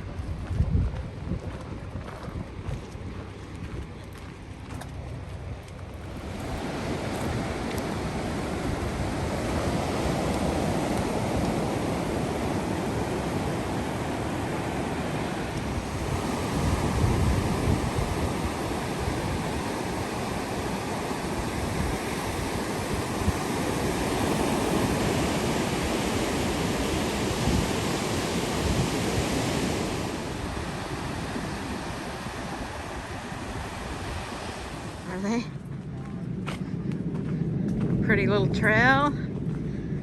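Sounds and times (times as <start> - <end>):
wind buffeting microphone: 0.0 - 40.0
surf washing onto beach: 5.2 - 35.5.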